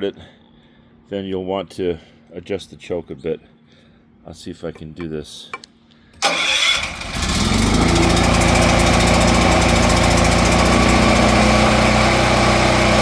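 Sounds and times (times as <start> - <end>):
generator engine running: 6.2 - 13.0.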